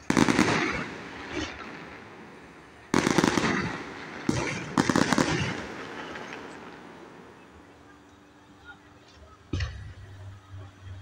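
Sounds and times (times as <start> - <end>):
fireworks popping bangs: 0.0 - 7.6.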